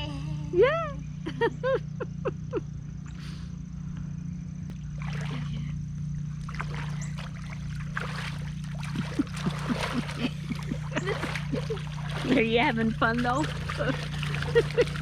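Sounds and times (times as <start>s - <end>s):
steady low hum: 0.0s - 15.0s
creek water sloshing and splashing: 4.7s - 15.0s.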